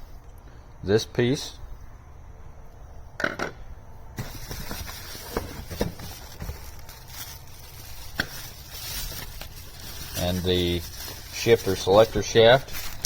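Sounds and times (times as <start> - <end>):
steady hiss: 4.2 - 13.0.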